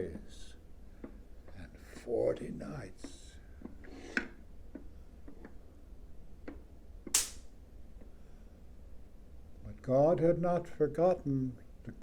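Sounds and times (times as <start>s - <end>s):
brief swish: 7.2s - 7.4s.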